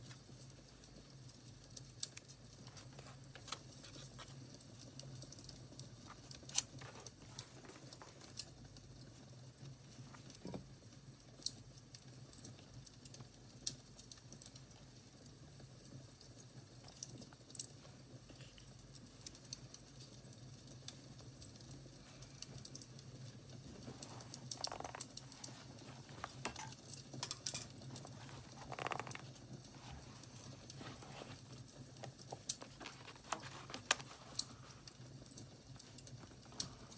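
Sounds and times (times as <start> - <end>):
wood fire crackling: 0.0 - 10.4, 21.7 - 36.9.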